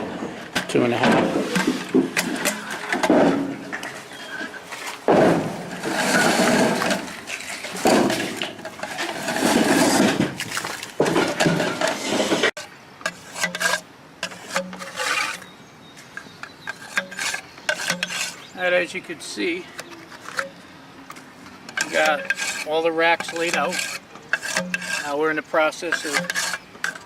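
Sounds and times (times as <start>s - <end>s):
racks scraping and knocking: 0.0s - 15.4s, 16.4s - 20.5s, 21.7s - 27.0s.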